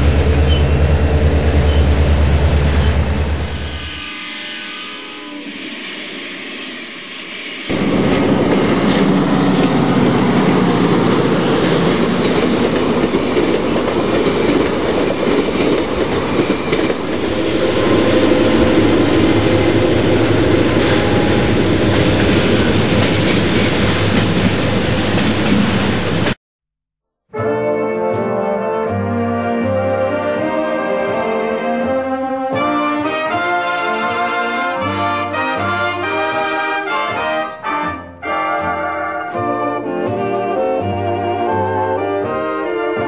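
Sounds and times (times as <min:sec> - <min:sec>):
train wheels clicking over rail joints: 0:07.7 - 0:26.4.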